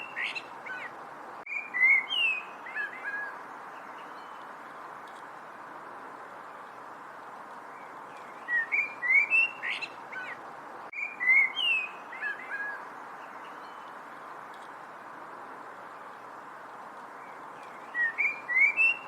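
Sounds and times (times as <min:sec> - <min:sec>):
background hiss: 0:00.0 - 0:19.0
songbird whistling: 0:01.5 - 0:03.3, 0:08.4 - 0:10.4, 0:11.0 - 0:12.8, 0:17.6 - 0:19.0.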